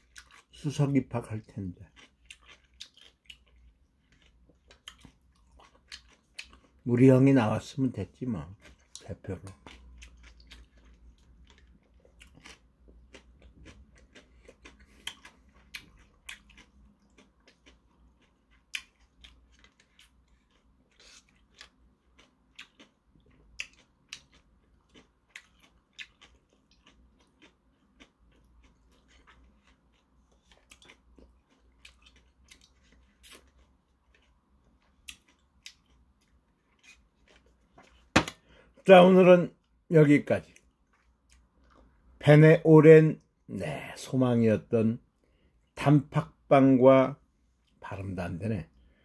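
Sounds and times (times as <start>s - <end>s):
person chewing with lip smacks: 1.9s - 6.8s, 8.6s - 38.5s.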